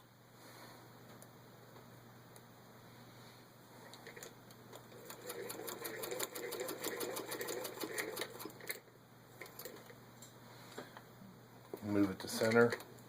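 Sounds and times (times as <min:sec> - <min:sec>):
sewing machine clicking: 0:03.9 - 0:08.8, 0:11.8 - 0:13.0.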